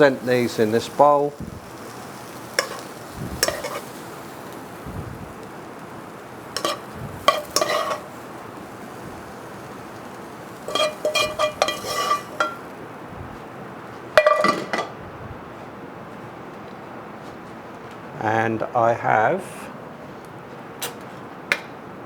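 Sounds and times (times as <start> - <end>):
faint steady hiss: 0.0 - 21.0
metal utensil clinking on pan and bowl: 2.6 - 4.0, 6.6 - 8.2, 10.7 - 12.7, 14.2 - 14.9.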